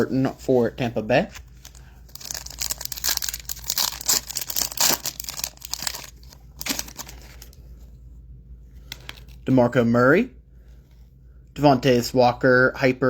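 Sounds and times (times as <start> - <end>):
foil wrapper crinkling and tearing: 1.4 - 7.6.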